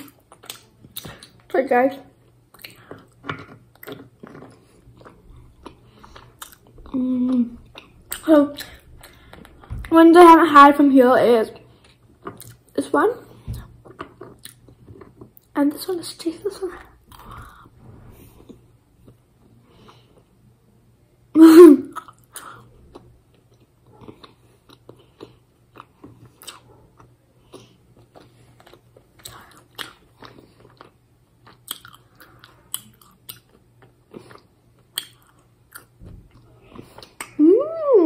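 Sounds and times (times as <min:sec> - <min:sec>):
chewing gummy sweet: 0:02.2 - 0:09.9, 0:11.6 - 0:15.6, 0:21.9 - 0:37.4.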